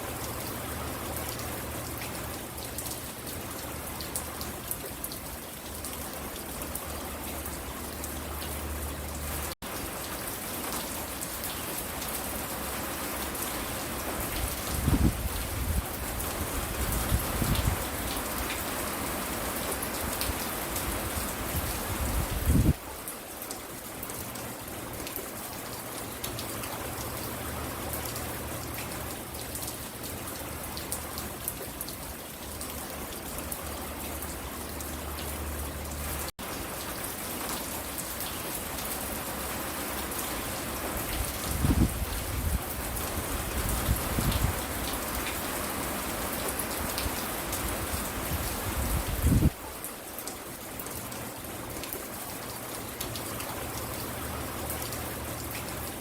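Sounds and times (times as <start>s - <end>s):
raindrops pattering: 0.0s - 56.0s.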